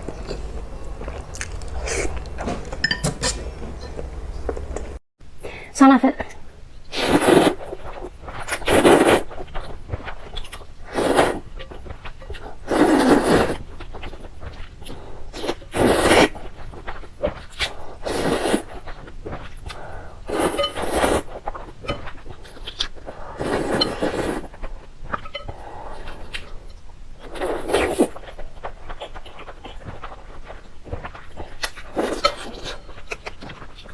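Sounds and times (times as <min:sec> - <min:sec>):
person slurping noodles: 0:12.6 - 0:13.6.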